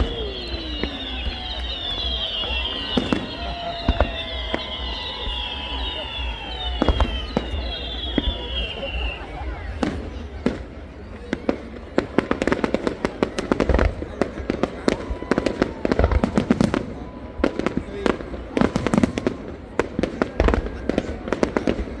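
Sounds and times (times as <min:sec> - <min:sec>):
deep firework booms: 0:00.0 - 0:22.0
fireworks crackling and popping: 0:00.0 - 0:22.0.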